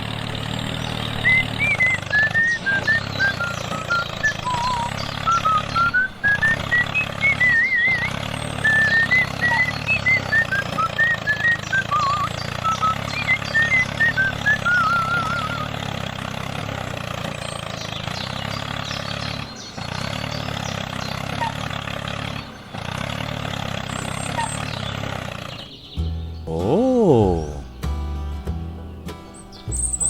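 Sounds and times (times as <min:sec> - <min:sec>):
small vehicle engine running: 0:00.0 - 0:27.6, 0:28.9 - 0:30.0
warbling bird-like calls: 0:01.2 - 0:15.8, 0:20.7 - 0:22.8, 0:24.0 - 0:25.1.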